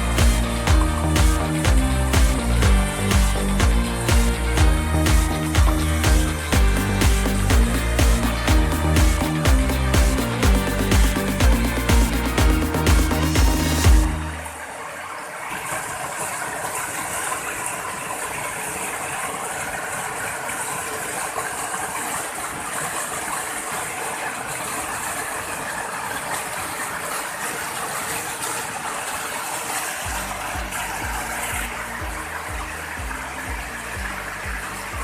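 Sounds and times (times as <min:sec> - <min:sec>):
music with bass beat: 0:00.0 - 0:14.5, 0:30.1 - 0:35.0
waterfall rushing: 0:00.0 - 0:35.0.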